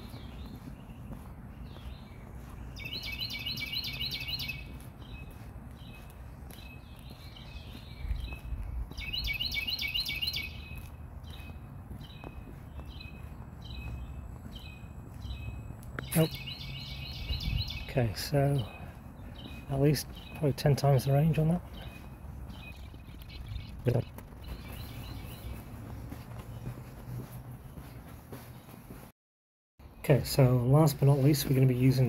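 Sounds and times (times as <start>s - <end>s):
bird chirping rapidly: 0.0s - 27.0s
soft bird calls: 0.0s - 29.0s.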